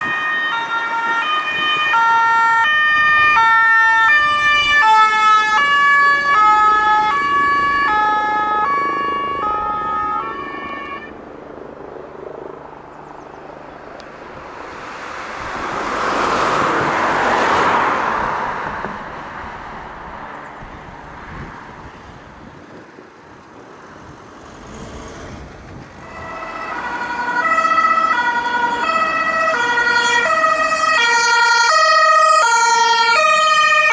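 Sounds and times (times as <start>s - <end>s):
two-tone emergency horn: 0.0s - 11.2s, 26.0s - 33.9s
vehicle driving past: 12.1s - 21.8s, 23.8s - 33.9s.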